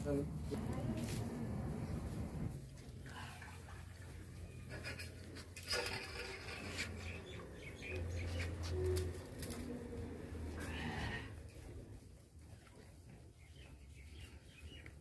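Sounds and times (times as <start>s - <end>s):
birds chirping: 6.2s - 9.0s.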